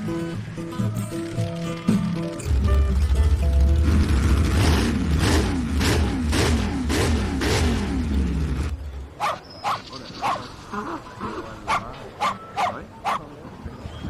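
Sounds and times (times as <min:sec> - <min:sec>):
engine running: 0:00.0 - 0:09.2
dog barking: 0:09.2 - 0:10.4, 0:11.7 - 0:13.3.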